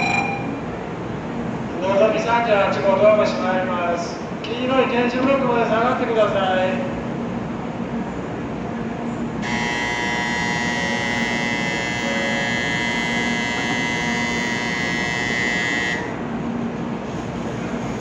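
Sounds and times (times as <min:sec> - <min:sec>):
low hum of waiting train: 0:00.0 - 0:18.0
platform departure buzzer: 0:09.4 - 0:16.2.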